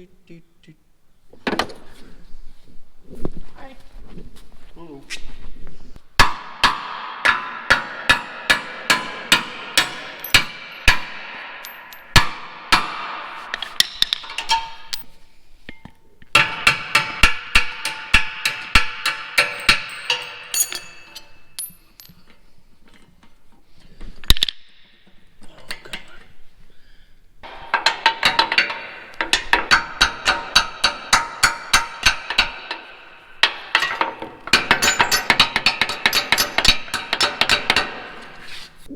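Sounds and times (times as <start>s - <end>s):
hammer striking metal: 6.2s - 15.1s, 16.3s - 21.8s, 27.4s - 38.5s.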